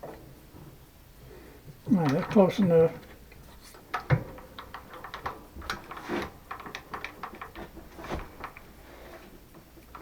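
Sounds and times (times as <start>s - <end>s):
metal tools clicking and knocking: 3.9s - 7.6s.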